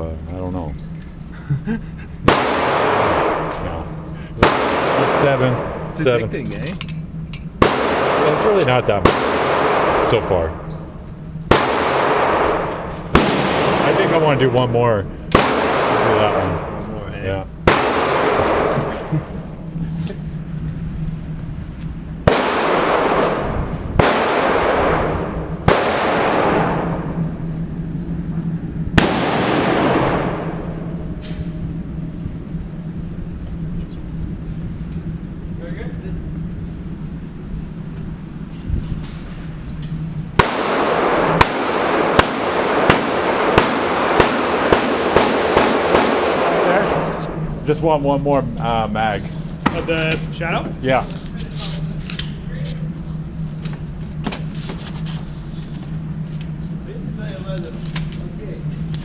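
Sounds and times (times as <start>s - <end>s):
handgun shots echoing indoors: 2.3s - 6.0s, 7.6s - 10.9s, 11.5s - 14.6s, 15.3s - 16.9s, 17.7s - 19.4s, 22.3s - 27.5s, 29.0s - 31.5s, 40.4s - 47.5s
handgun shots with echo: 15.3s - 16.8s, 40.4s - 47.4s.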